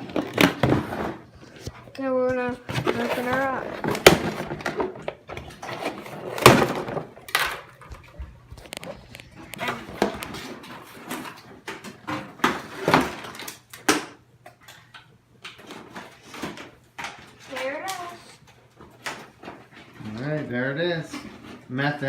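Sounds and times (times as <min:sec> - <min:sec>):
box and packaging being opened: 0:00.0 - 0:13.8.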